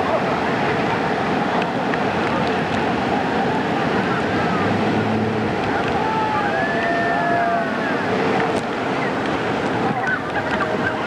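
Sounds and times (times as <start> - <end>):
churning water roar: 0.0 - 11.0
motorboat engine: 0.0 - 11.0.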